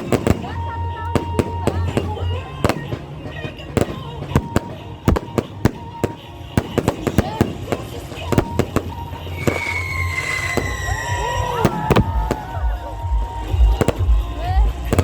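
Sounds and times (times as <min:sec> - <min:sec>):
fireworks cracks and bangs: 0:00.0 - 0:15.0
high falling whistle: 0:09.3 - 0:12.9.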